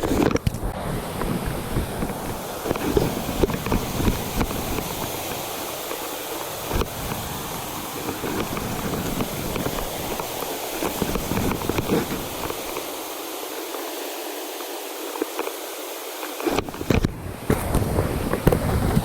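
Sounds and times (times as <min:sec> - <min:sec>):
footsteps on a trail: 0:00.0 - 0:19.0
river rushing: 0:00.0 - 0:19.0.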